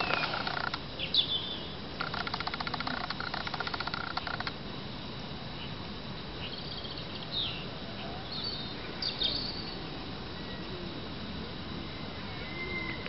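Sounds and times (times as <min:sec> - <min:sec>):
small birds chirping: 0:00.0 - 0:04.5
low background noise: 0:00.0 - 0:13.0.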